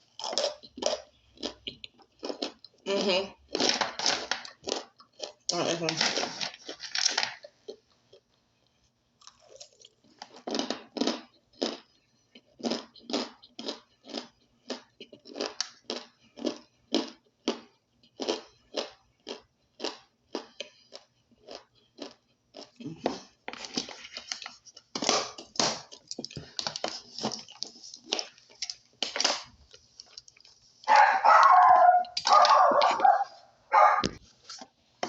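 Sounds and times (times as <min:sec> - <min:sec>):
chewing crunchy powder: 0:00.0 - 0:02.8, 0:03.4 - 0:08.4, 0:09.2 - 0:33.0.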